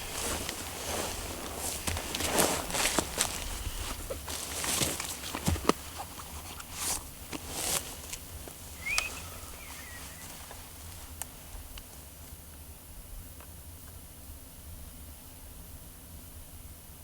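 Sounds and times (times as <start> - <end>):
twigs snapping: 0.0 - 11.9
footsteps in dry grass: 0.0 - 12.3
small bird chirping: 8.6 - 11.2.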